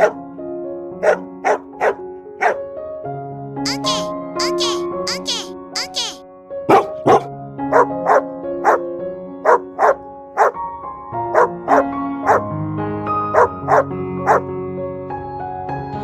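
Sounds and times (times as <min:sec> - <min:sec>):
background music: 0:00.0 - 0:16.0
dog barking: 0:01.0 - 0:02.6, 0:06.7 - 0:10.6, 0:11.3 - 0:12.4, 0:13.3 - 0:14.5.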